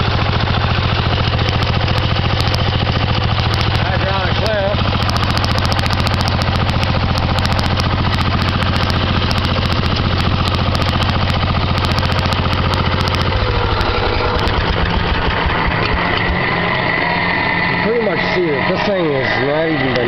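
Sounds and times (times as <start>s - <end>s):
garden tractor engine running: 0.0s - 20.0s.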